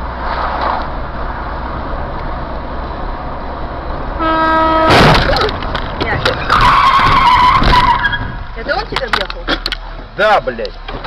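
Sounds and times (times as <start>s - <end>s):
road and engine noise: 0.0s - 11.0s
vehicle horn: 4.2s - 5.2s
car collision crash: 4.8s - 8.4s.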